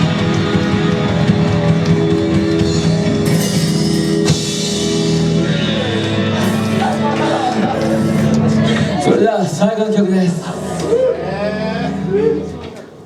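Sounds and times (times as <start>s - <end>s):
live rock band playing: 0.0s - 13.0s
sharp cymbal hits: 2.4s - 9.0s.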